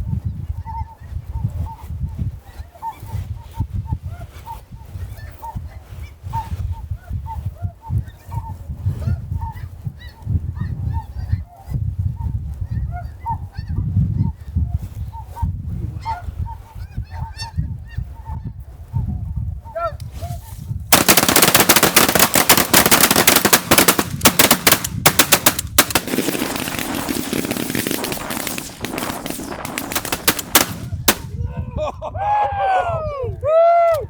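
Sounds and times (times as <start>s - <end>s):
wind rumble on microphone: 0.0s - 21.0s, 23.6s - 34.0s
shotgun volley: 21.0s - 31.3s.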